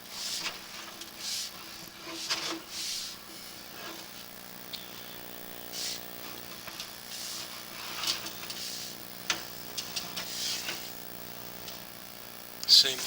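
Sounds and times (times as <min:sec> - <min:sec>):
cable clicking and scraping in pipe: 0:00.0 - 0:05.2, 0:05.8 - 0:11.0
steady hum: 0:00.0 - 0:13.0.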